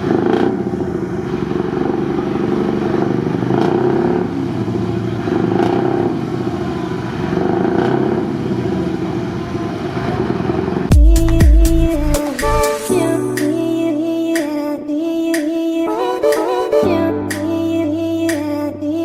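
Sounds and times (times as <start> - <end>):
truck engine drone: 0.0 - 12.6.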